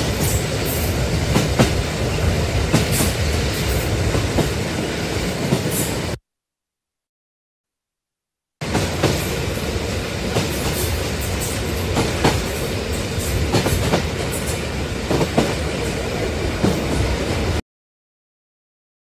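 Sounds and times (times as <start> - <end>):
train rumbling on rails: 0.0 - 6.2, 8.6 - 17.6.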